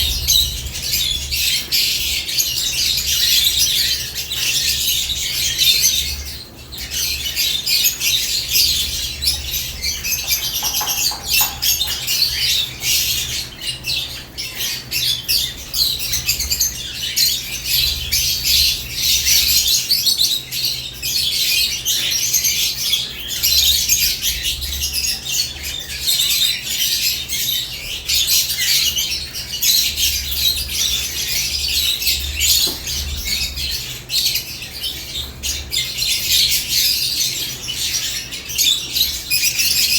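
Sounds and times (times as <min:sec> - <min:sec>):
steady low hum: 0:00.0 - 0:14.4
lovebirds chirping and squawking: 0:00.0 - 0:39.9.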